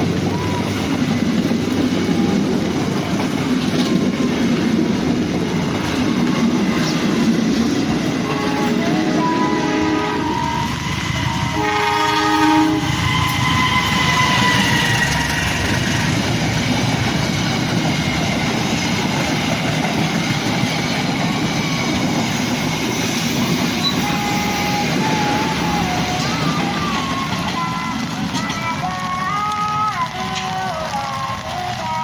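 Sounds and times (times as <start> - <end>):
train wheels rumbling on rails: 0.0 - 32.0
train horn chord: 8.2 - 15.2, 23.9 - 28.0.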